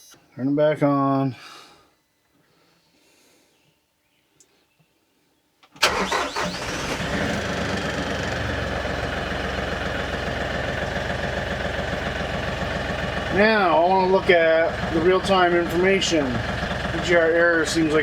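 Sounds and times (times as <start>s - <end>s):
tractor diesel engine starting: 5.8s - 18.0s.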